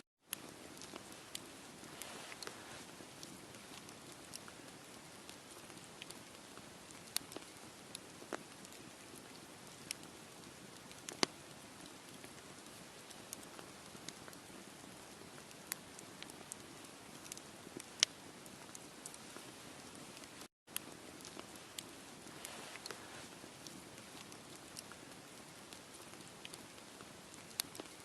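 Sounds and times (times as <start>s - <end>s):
campfire crackling: 0.3s - 28.0s.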